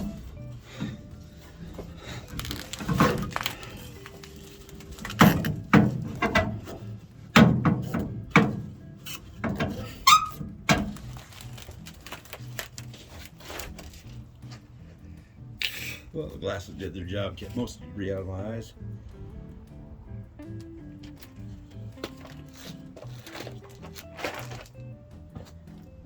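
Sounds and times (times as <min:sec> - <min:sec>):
background music: 0:00.0 - 0:26.0
knocks and clunks on metal: 0:05.1 - 0:08.8, 0:09.4 - 0:11.0.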